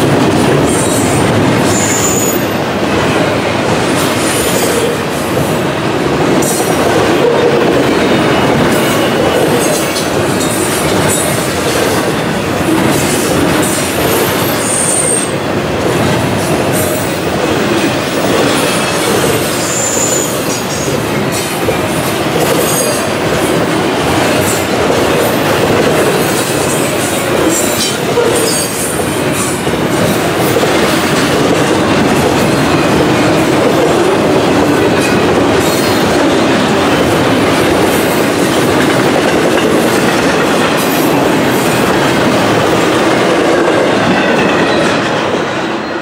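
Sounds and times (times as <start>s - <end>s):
train wheels rumbling on rails: 0.0s - 46.0s
high-pitched wheel squeal: 1.7s - 2.4s.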